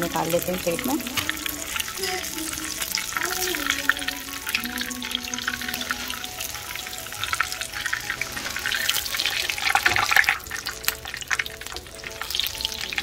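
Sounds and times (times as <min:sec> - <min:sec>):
food sizzling in oil: 0:00.0 - 0:13.0
soft background music: 0:00.0 - 0:13.0.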